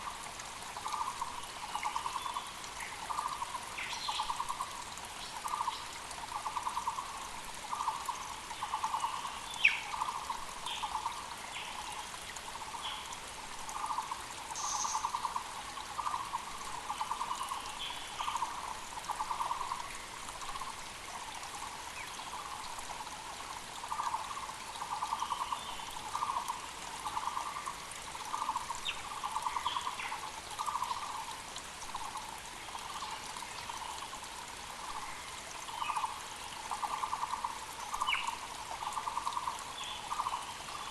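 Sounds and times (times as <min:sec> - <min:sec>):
faint creek hiss: 0:00.0 - 0:40.9
small birds chirping: 0:13.8 - 0:19.8, 0:34.9 - 0:40.9.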